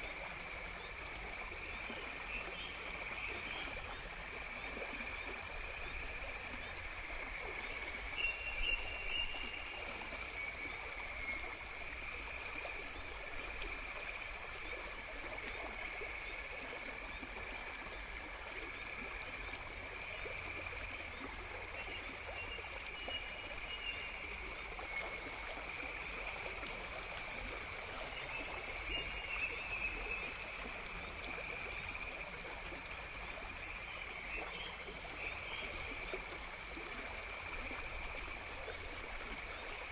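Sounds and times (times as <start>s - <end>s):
running water rushing: 0.0s - 39.9s
insects trilling: 7.6s - 14.8s.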